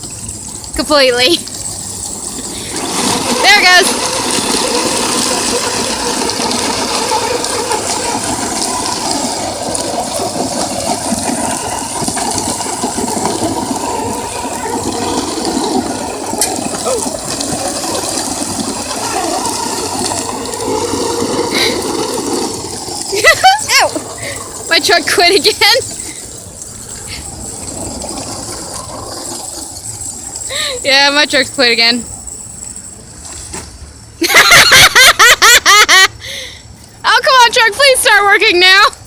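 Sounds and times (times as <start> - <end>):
rc trucks driving on dirt: 0.0 - 34.7, 36.5 - 39.0.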